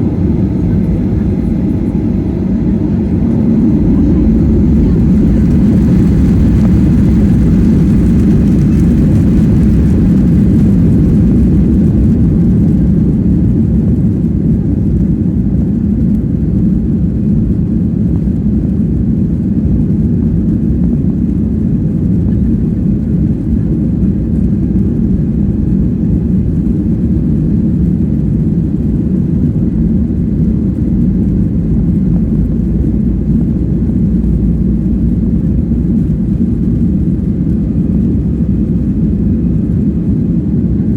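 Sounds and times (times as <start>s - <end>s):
rushing air: 0.0s - 10.2s
jet engines rumbling: 0.0s - 40.9s.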